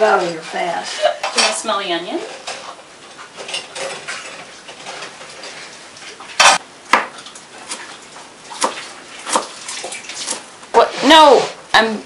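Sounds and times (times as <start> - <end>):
dishes and utensils clattering: 0.0 - 6.6.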